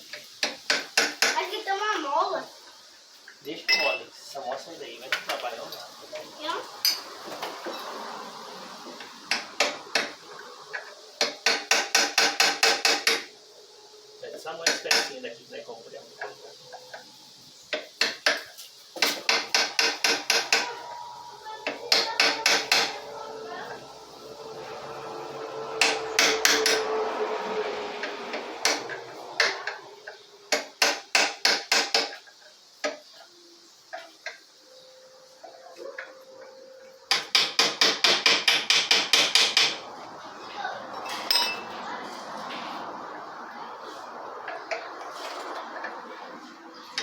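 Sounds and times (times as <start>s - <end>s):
hammer tapping on metal: 10.8s - 13.3s, 17.8s - 20.8s, 21.6s - 23.0s, 37.1s - 39.8s.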